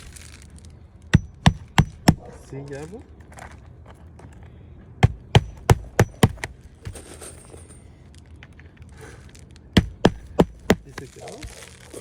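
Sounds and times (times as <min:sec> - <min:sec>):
sharp knocks: 0:01.1 - 0:02.3, 0:05.0 - 0:06.6, 0:09.8 - 0:11.1.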